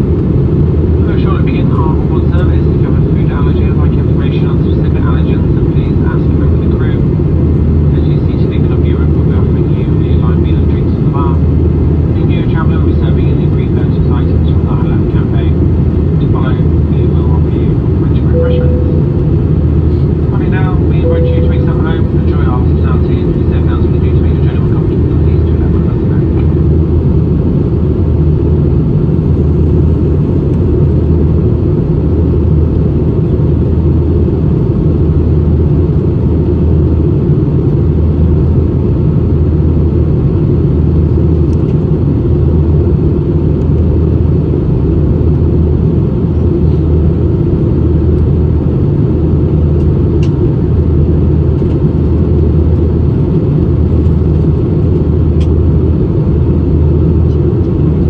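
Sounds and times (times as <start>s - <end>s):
airplane cabin engine drone: 0.0s - 58.0s.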